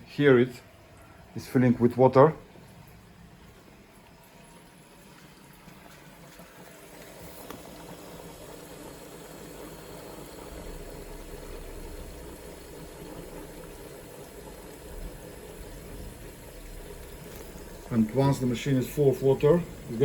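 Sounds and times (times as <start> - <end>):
rush of water filling: 0.0 - 20.0
low hum: 10.4 - 17.9.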